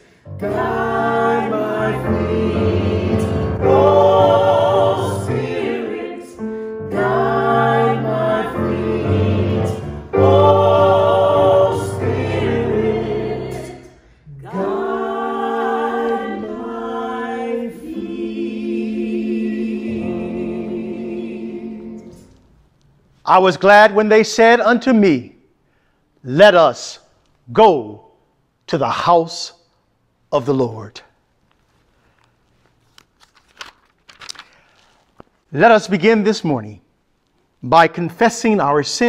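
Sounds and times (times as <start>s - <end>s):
choir singing a hymn: 0.0s - 22.4s.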